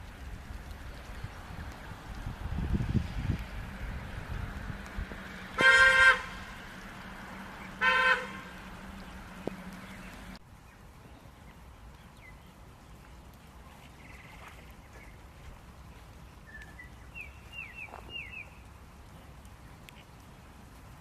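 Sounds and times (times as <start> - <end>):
small birds chirping: 8.6 - 20.7.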